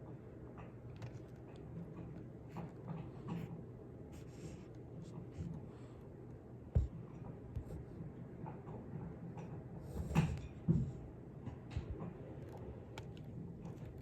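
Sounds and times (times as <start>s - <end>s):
dull thump: 6.8s - 7.0s.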